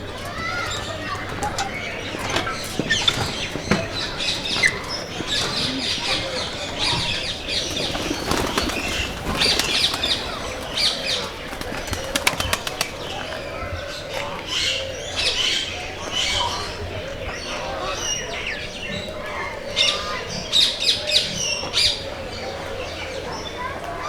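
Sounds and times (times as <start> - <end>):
birds chirping and calling: 0.0 - 24.0
wings flapping: 0.5 - 13.6.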